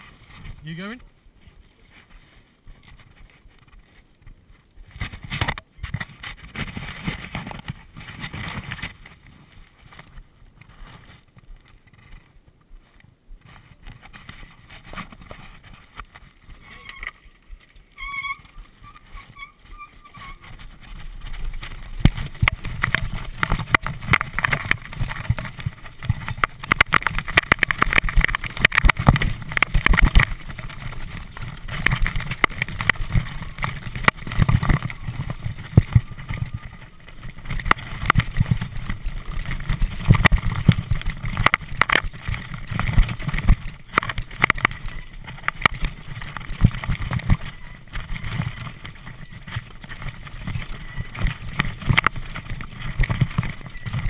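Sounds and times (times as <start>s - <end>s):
bicycle rattling over rough ground: 0.0s - 54.0s
tyre rumble: 13.4s - 54.0s.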